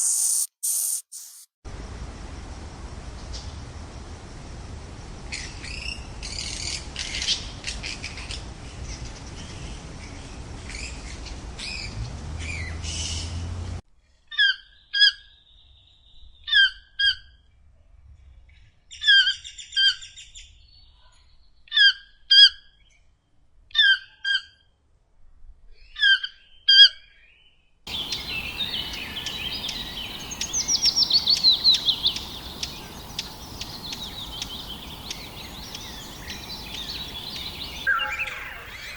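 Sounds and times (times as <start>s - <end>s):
background hiss: 0.0s - 6.8s, 27.9s - 38.9s
bird calls: 27.9s - 38.9s
fast bird trill: 27.9s - 38.9s
short clear bird call notes: 27.9s - 38.9s.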